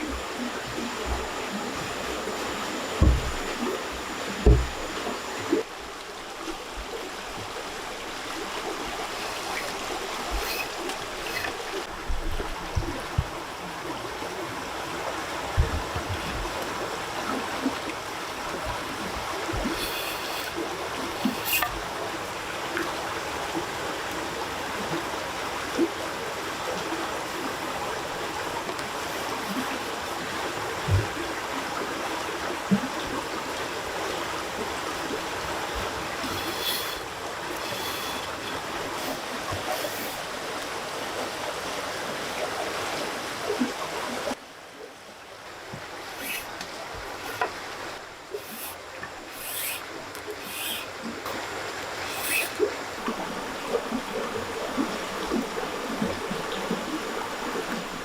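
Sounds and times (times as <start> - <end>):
running water: 0.0 - 58.0
knocks: 3.0 - 3.7, 4.4 - 4.9.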